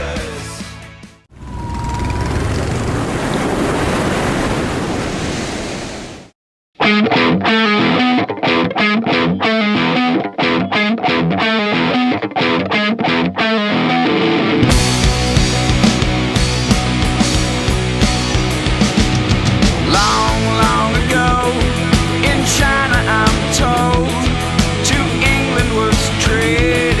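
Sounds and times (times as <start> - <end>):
surf washing: 1.4 - 6.4
rock music with electric guitar: 6.8 - 27.0.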